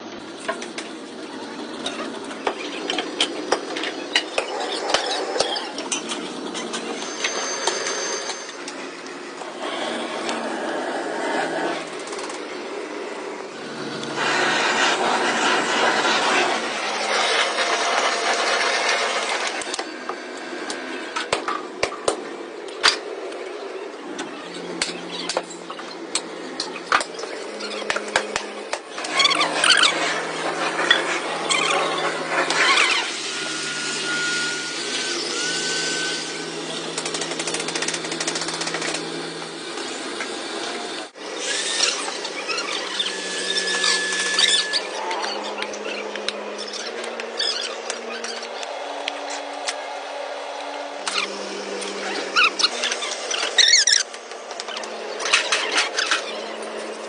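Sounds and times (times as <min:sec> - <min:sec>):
workshop machinery running: 0:00.0 - 0:57.0
workshop machinery rushing: 0:00.2 - 0:23.2.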